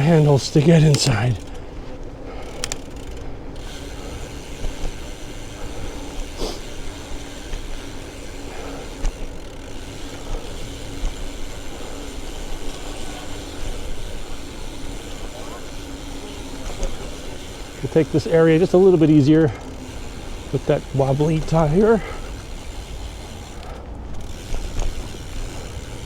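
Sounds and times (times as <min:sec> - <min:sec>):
bicycle tyre road noise: 0:00.0 - 0:26.0
freewheel ratchet ticking: 0:02.3 - 0:26.0.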